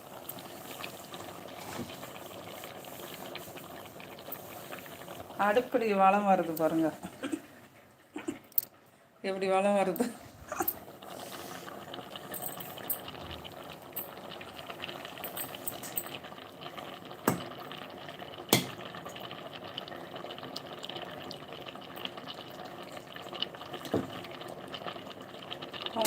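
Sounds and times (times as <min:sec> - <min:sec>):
food frying in hot oil: 0:00.0 - 0:07.0, 0:09.8 - 0:26.0.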